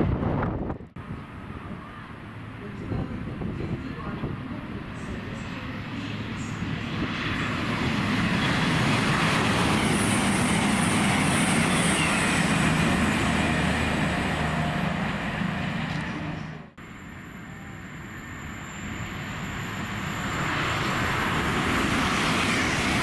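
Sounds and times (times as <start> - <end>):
train wheels rushing past: 4.4 - 16.6, 18.0 - 23.0.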